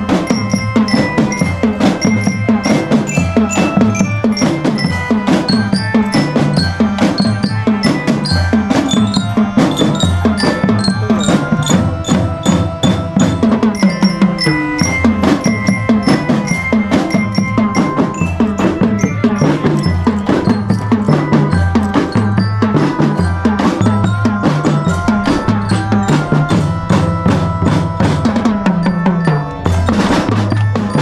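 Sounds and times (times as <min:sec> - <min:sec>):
bell lyre melody: 0:00.0 - 0:31.0
snare and bass drums: 0:00.0 - 0:31.0.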